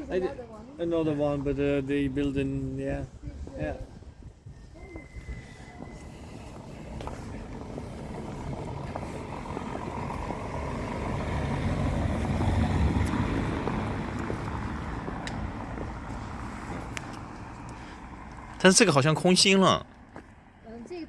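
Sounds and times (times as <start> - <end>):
vehicle passing by: 5.4 - 19.3.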